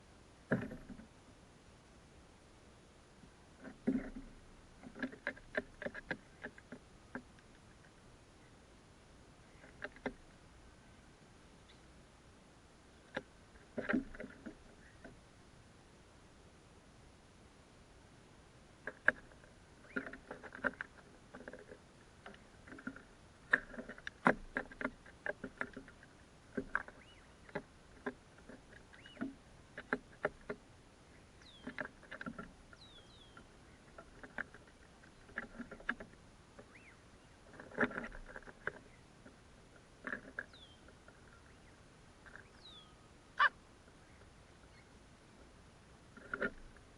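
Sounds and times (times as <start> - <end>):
crows calling softly: 40.0 - 45.0.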